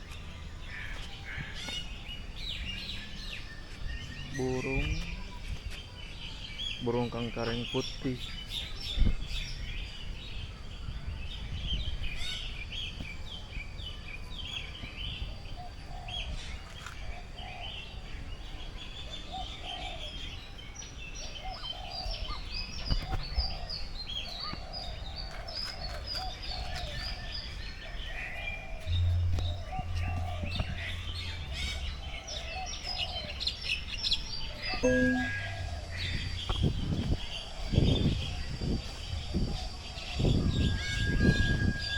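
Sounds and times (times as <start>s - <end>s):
birds chirping in chorus: 0.0s - 41.9s
wind rumble on microphone: 8.3s - 19.3s, 20.4s - 34.7s, 35.3s - 41.9s
low bird call repeated: 34.6s - 36.6s.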